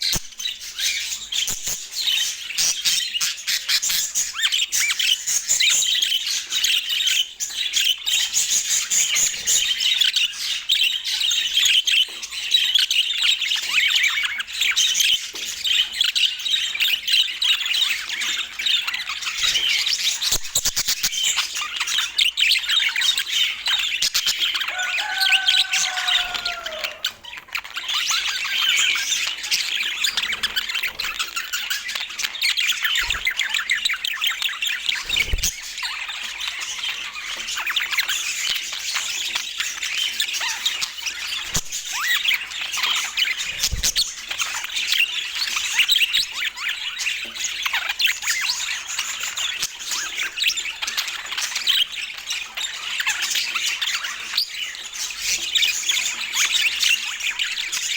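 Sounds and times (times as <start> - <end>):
budgerigars chattering: 0.0 - 57.9
lower falling bird call: 24.7 - 27.1.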